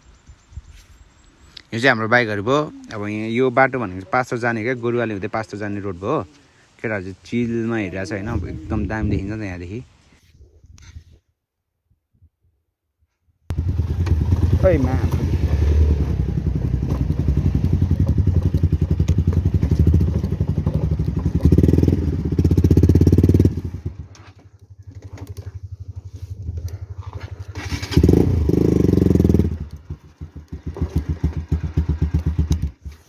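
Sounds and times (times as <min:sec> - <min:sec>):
motorcycle engine running: 0:13.5 - 0:33.0.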